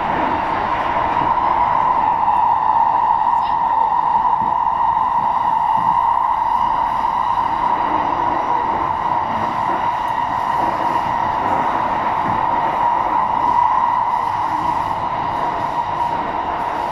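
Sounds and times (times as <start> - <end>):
train running rumble: 0.0 - 16.9.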